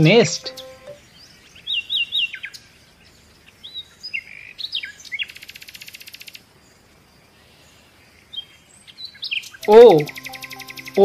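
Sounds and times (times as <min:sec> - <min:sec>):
bird chirping: 0:00.0 - 0:02.5.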